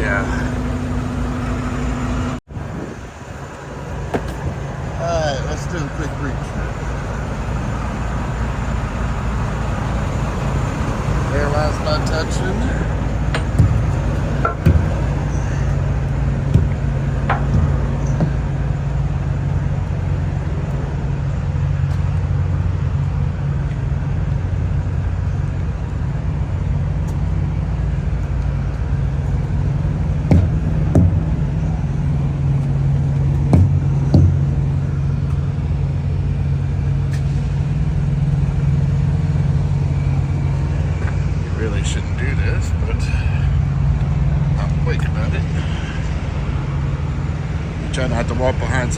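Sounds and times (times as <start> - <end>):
truck diesel engine idling: 0.0 - 48.9.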